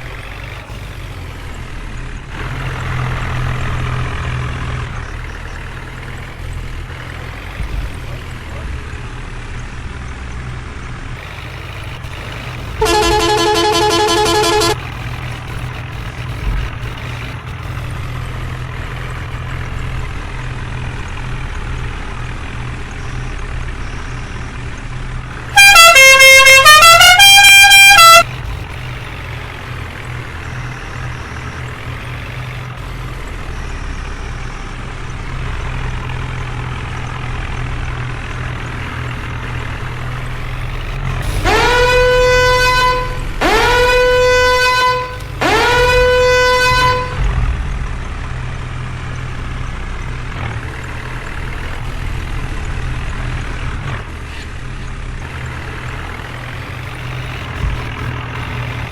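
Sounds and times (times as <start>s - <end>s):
diesel engine running: 0.0s - 58.9s
wavering vehicle horn: 11.2s - 22.8s, 25.3s - 48.1s
musical horn playing tune: 12.8s - 15.6s, 25.5s - 28.3s, 41.0s - 47.4s.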